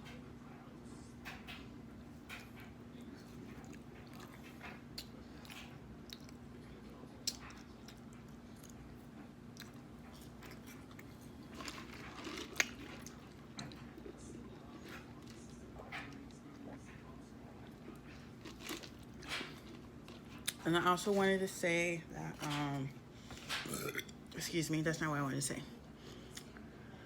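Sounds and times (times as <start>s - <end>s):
faint steady hum: 0.0s - 27.0s
person chewing and crunching: 3.2s - 20.6s, 23.4s - 24.2s.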